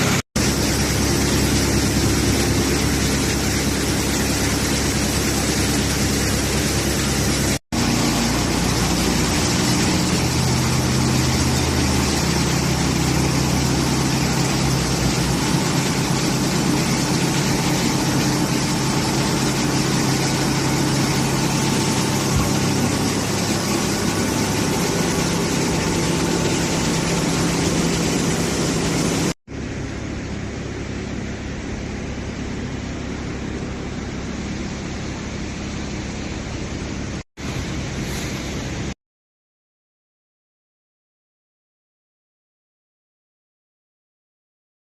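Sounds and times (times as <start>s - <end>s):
baler mechanical hum: 0.0s - 39.0s
hiss: 37.4s - 38.9s.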